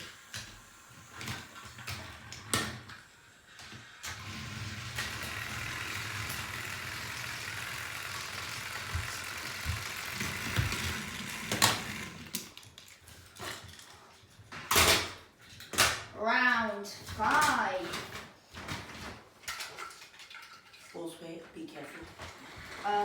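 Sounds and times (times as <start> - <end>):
toy train motors whirring: 0.0 - 14.1, 22.0 - 23.0.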